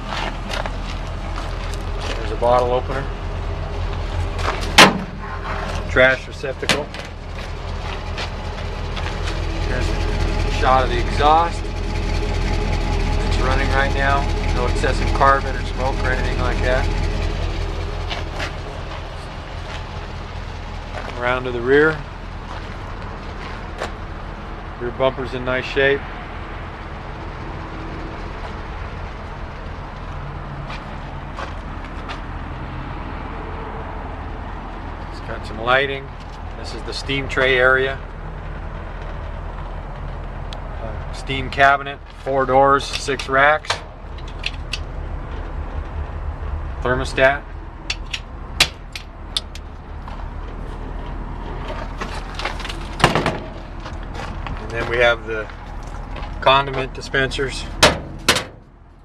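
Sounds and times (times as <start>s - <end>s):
truck engine idling: 0.0s - 59.0s
sharp clicks: 47.9s - 49.7s.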